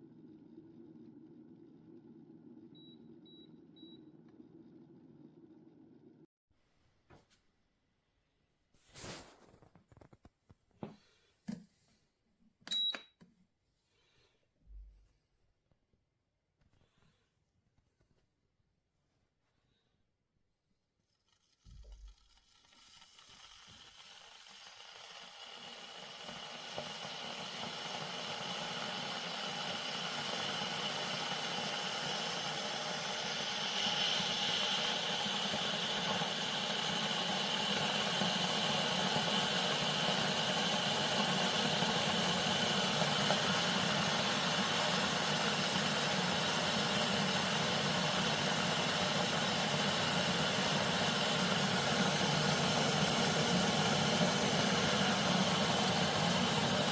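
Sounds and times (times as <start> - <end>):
electric kettle heating water: 0.0 - 6.3, 21.8 - 56.9.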